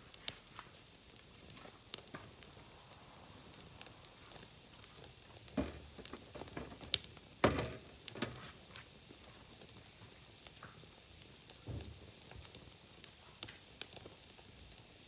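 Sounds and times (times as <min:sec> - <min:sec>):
wood fire crackling: 0:00.0 - 0:15.0
dull thuds: 0:05.6 - 0:06.8.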